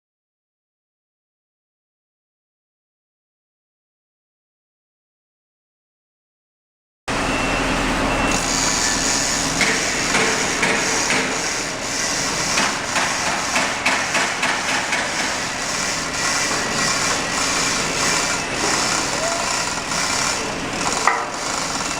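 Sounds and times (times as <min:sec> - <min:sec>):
hammering knocks and clanks: 0:09.6 - 0:11.6, 0:12.5 - 0:17.3, 0:20.8 - 0:21.9.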